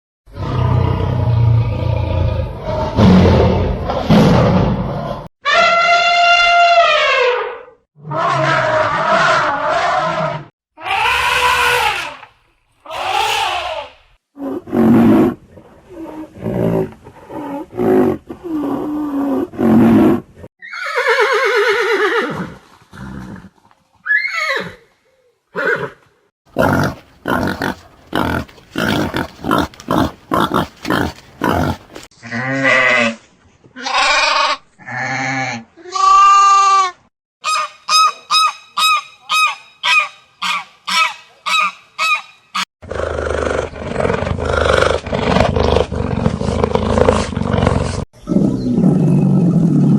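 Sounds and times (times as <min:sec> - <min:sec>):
fast short repeated calls: 0:37.4 - 0:42.6
animal calls: 0:37.4 - 0:42.7.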